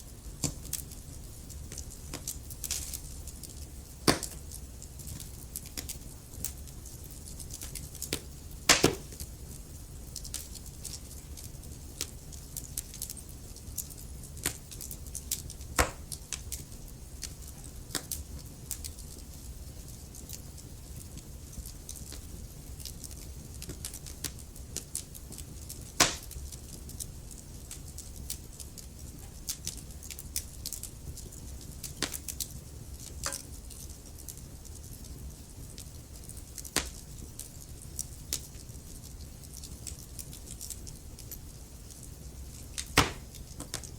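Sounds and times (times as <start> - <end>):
burning logs crackling: 0.0 - 43.9
loud pops of fire: 1.6 - 11.0, 14.4 - 16.6, 21.6 - 27.1, 27.7 - 33.8, 35.7 - 37.5, 42.7 - 43.9.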